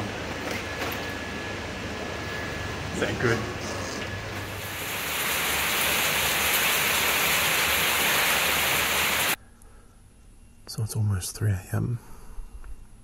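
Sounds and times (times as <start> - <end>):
rain falling: 4.4 - 9.4.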